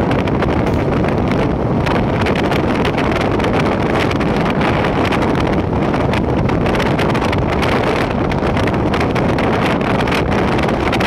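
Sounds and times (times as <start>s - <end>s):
train rolling at speed: 0.0s - 11.0s
wind buffeting microphone: 0.0s - 11.0s.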